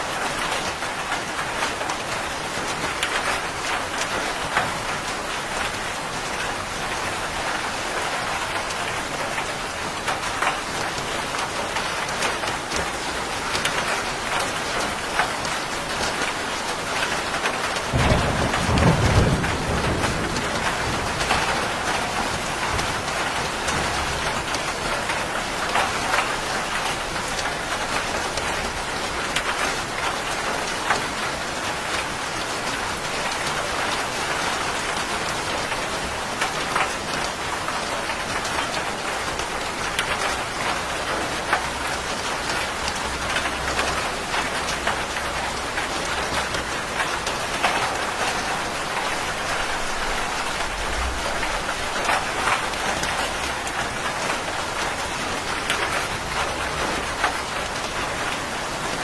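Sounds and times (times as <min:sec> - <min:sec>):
heavy rain pattering: 0:00.0 - 0:59.0
thunder rumbling: 0:17.9 - 0:24.1, 0:49.0 - 0:53.5.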